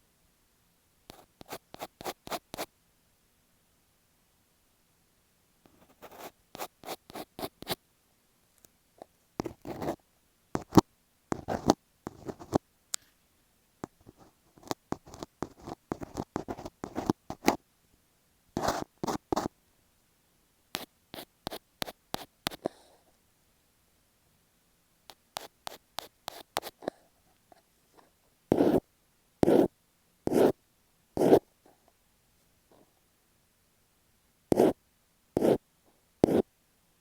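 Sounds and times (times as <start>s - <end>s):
scratching on tape: 10.6s - 12.6s, 14.0s - 17.6s, 18.6s - 19.5s, 28.5s - 28.8s, 36.2s - 36.4s.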